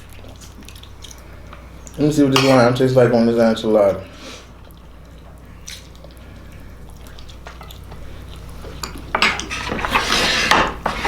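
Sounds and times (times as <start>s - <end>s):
juice dripping: 0.0s - 9.6s
lime squishing: 4.6s - 9.1s.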